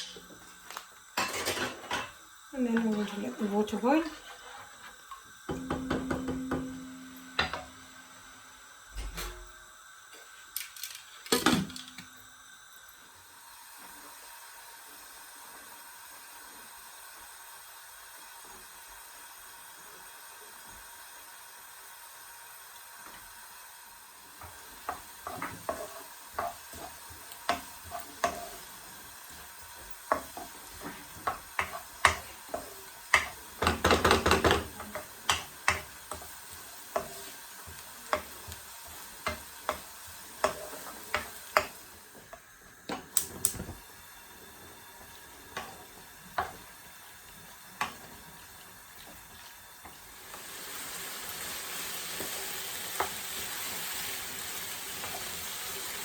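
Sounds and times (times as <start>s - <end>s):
food sizzling in a pan: 0.0s - 56.0s
utensils clinking on pots: 1.2s - 4.2s, 5.1s - 7.8s, 24.4s - 41.8s.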